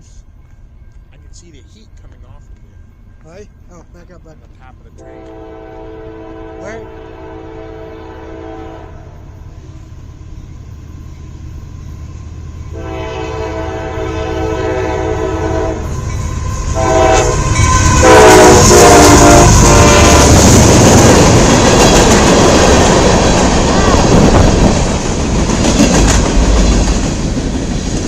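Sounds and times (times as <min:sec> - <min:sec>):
passing train rumble and clatter: 0:00.0 - 0:28.0
locomotive horn blowing: 0:05.0 - 0:09.4, 0:12.7 - 0:20.4.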